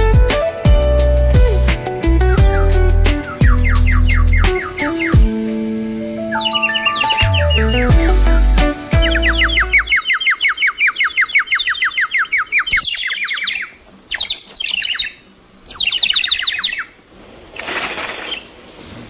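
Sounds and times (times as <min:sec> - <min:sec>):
bird whistle warbling trill: 0:02.3 - 0:05.3, 0:06.3 - 0:17.0
hiss-like noise: 0:17.2 - 0:19.0.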